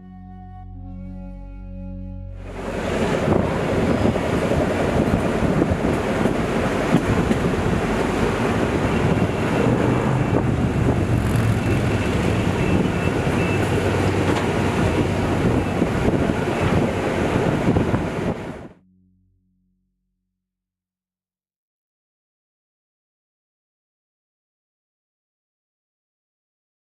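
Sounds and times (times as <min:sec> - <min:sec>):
train rolling rumble: 0:02.5 - 0:18.7
wind buffeting microphone: 0:02.5 - 0:18.8.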